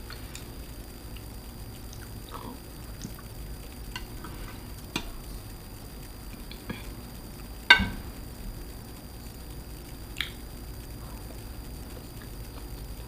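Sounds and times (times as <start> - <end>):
eating clicks and wet smacks: 0.1 - 3.4, 6.3 - 6.9, 10.0 - 10.5, 11.9 - 12.9.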